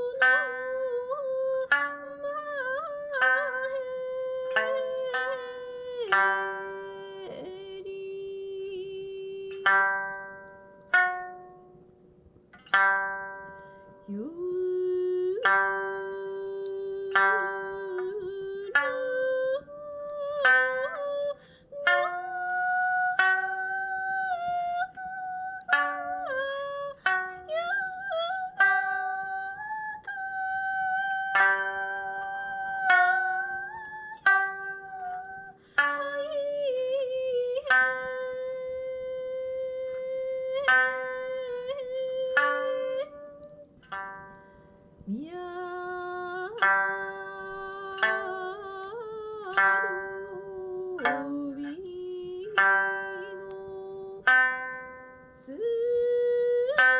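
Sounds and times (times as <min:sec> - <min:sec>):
ocarina melody: 0:00.0 - 0:56.9
plucked lute notes: 0:00.0 - 0:56.9.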